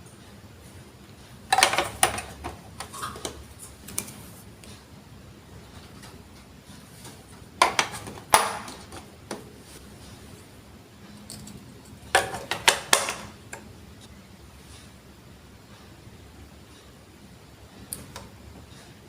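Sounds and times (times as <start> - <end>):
plastic toy pieces clattering: 1.5 - 3.1.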